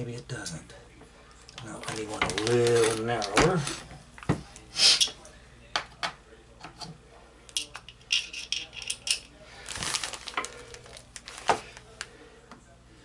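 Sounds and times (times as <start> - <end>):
metal hand tools clinking: 7.6 - 9.3.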